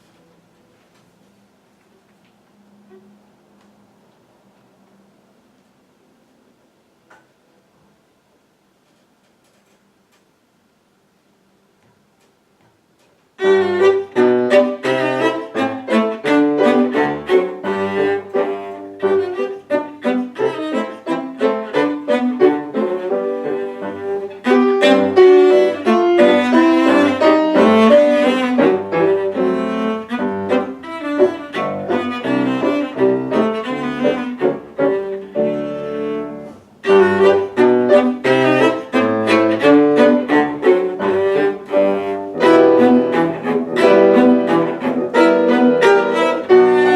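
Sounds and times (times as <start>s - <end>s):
cello and piano classical piece: 13.4s - 46.9s.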